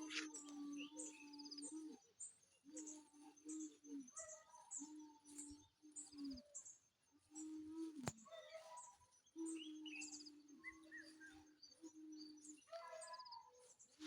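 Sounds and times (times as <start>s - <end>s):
low cooing: 0.0s - 1.7s
birds chirping and tweeting: 0.0s - 14.0s.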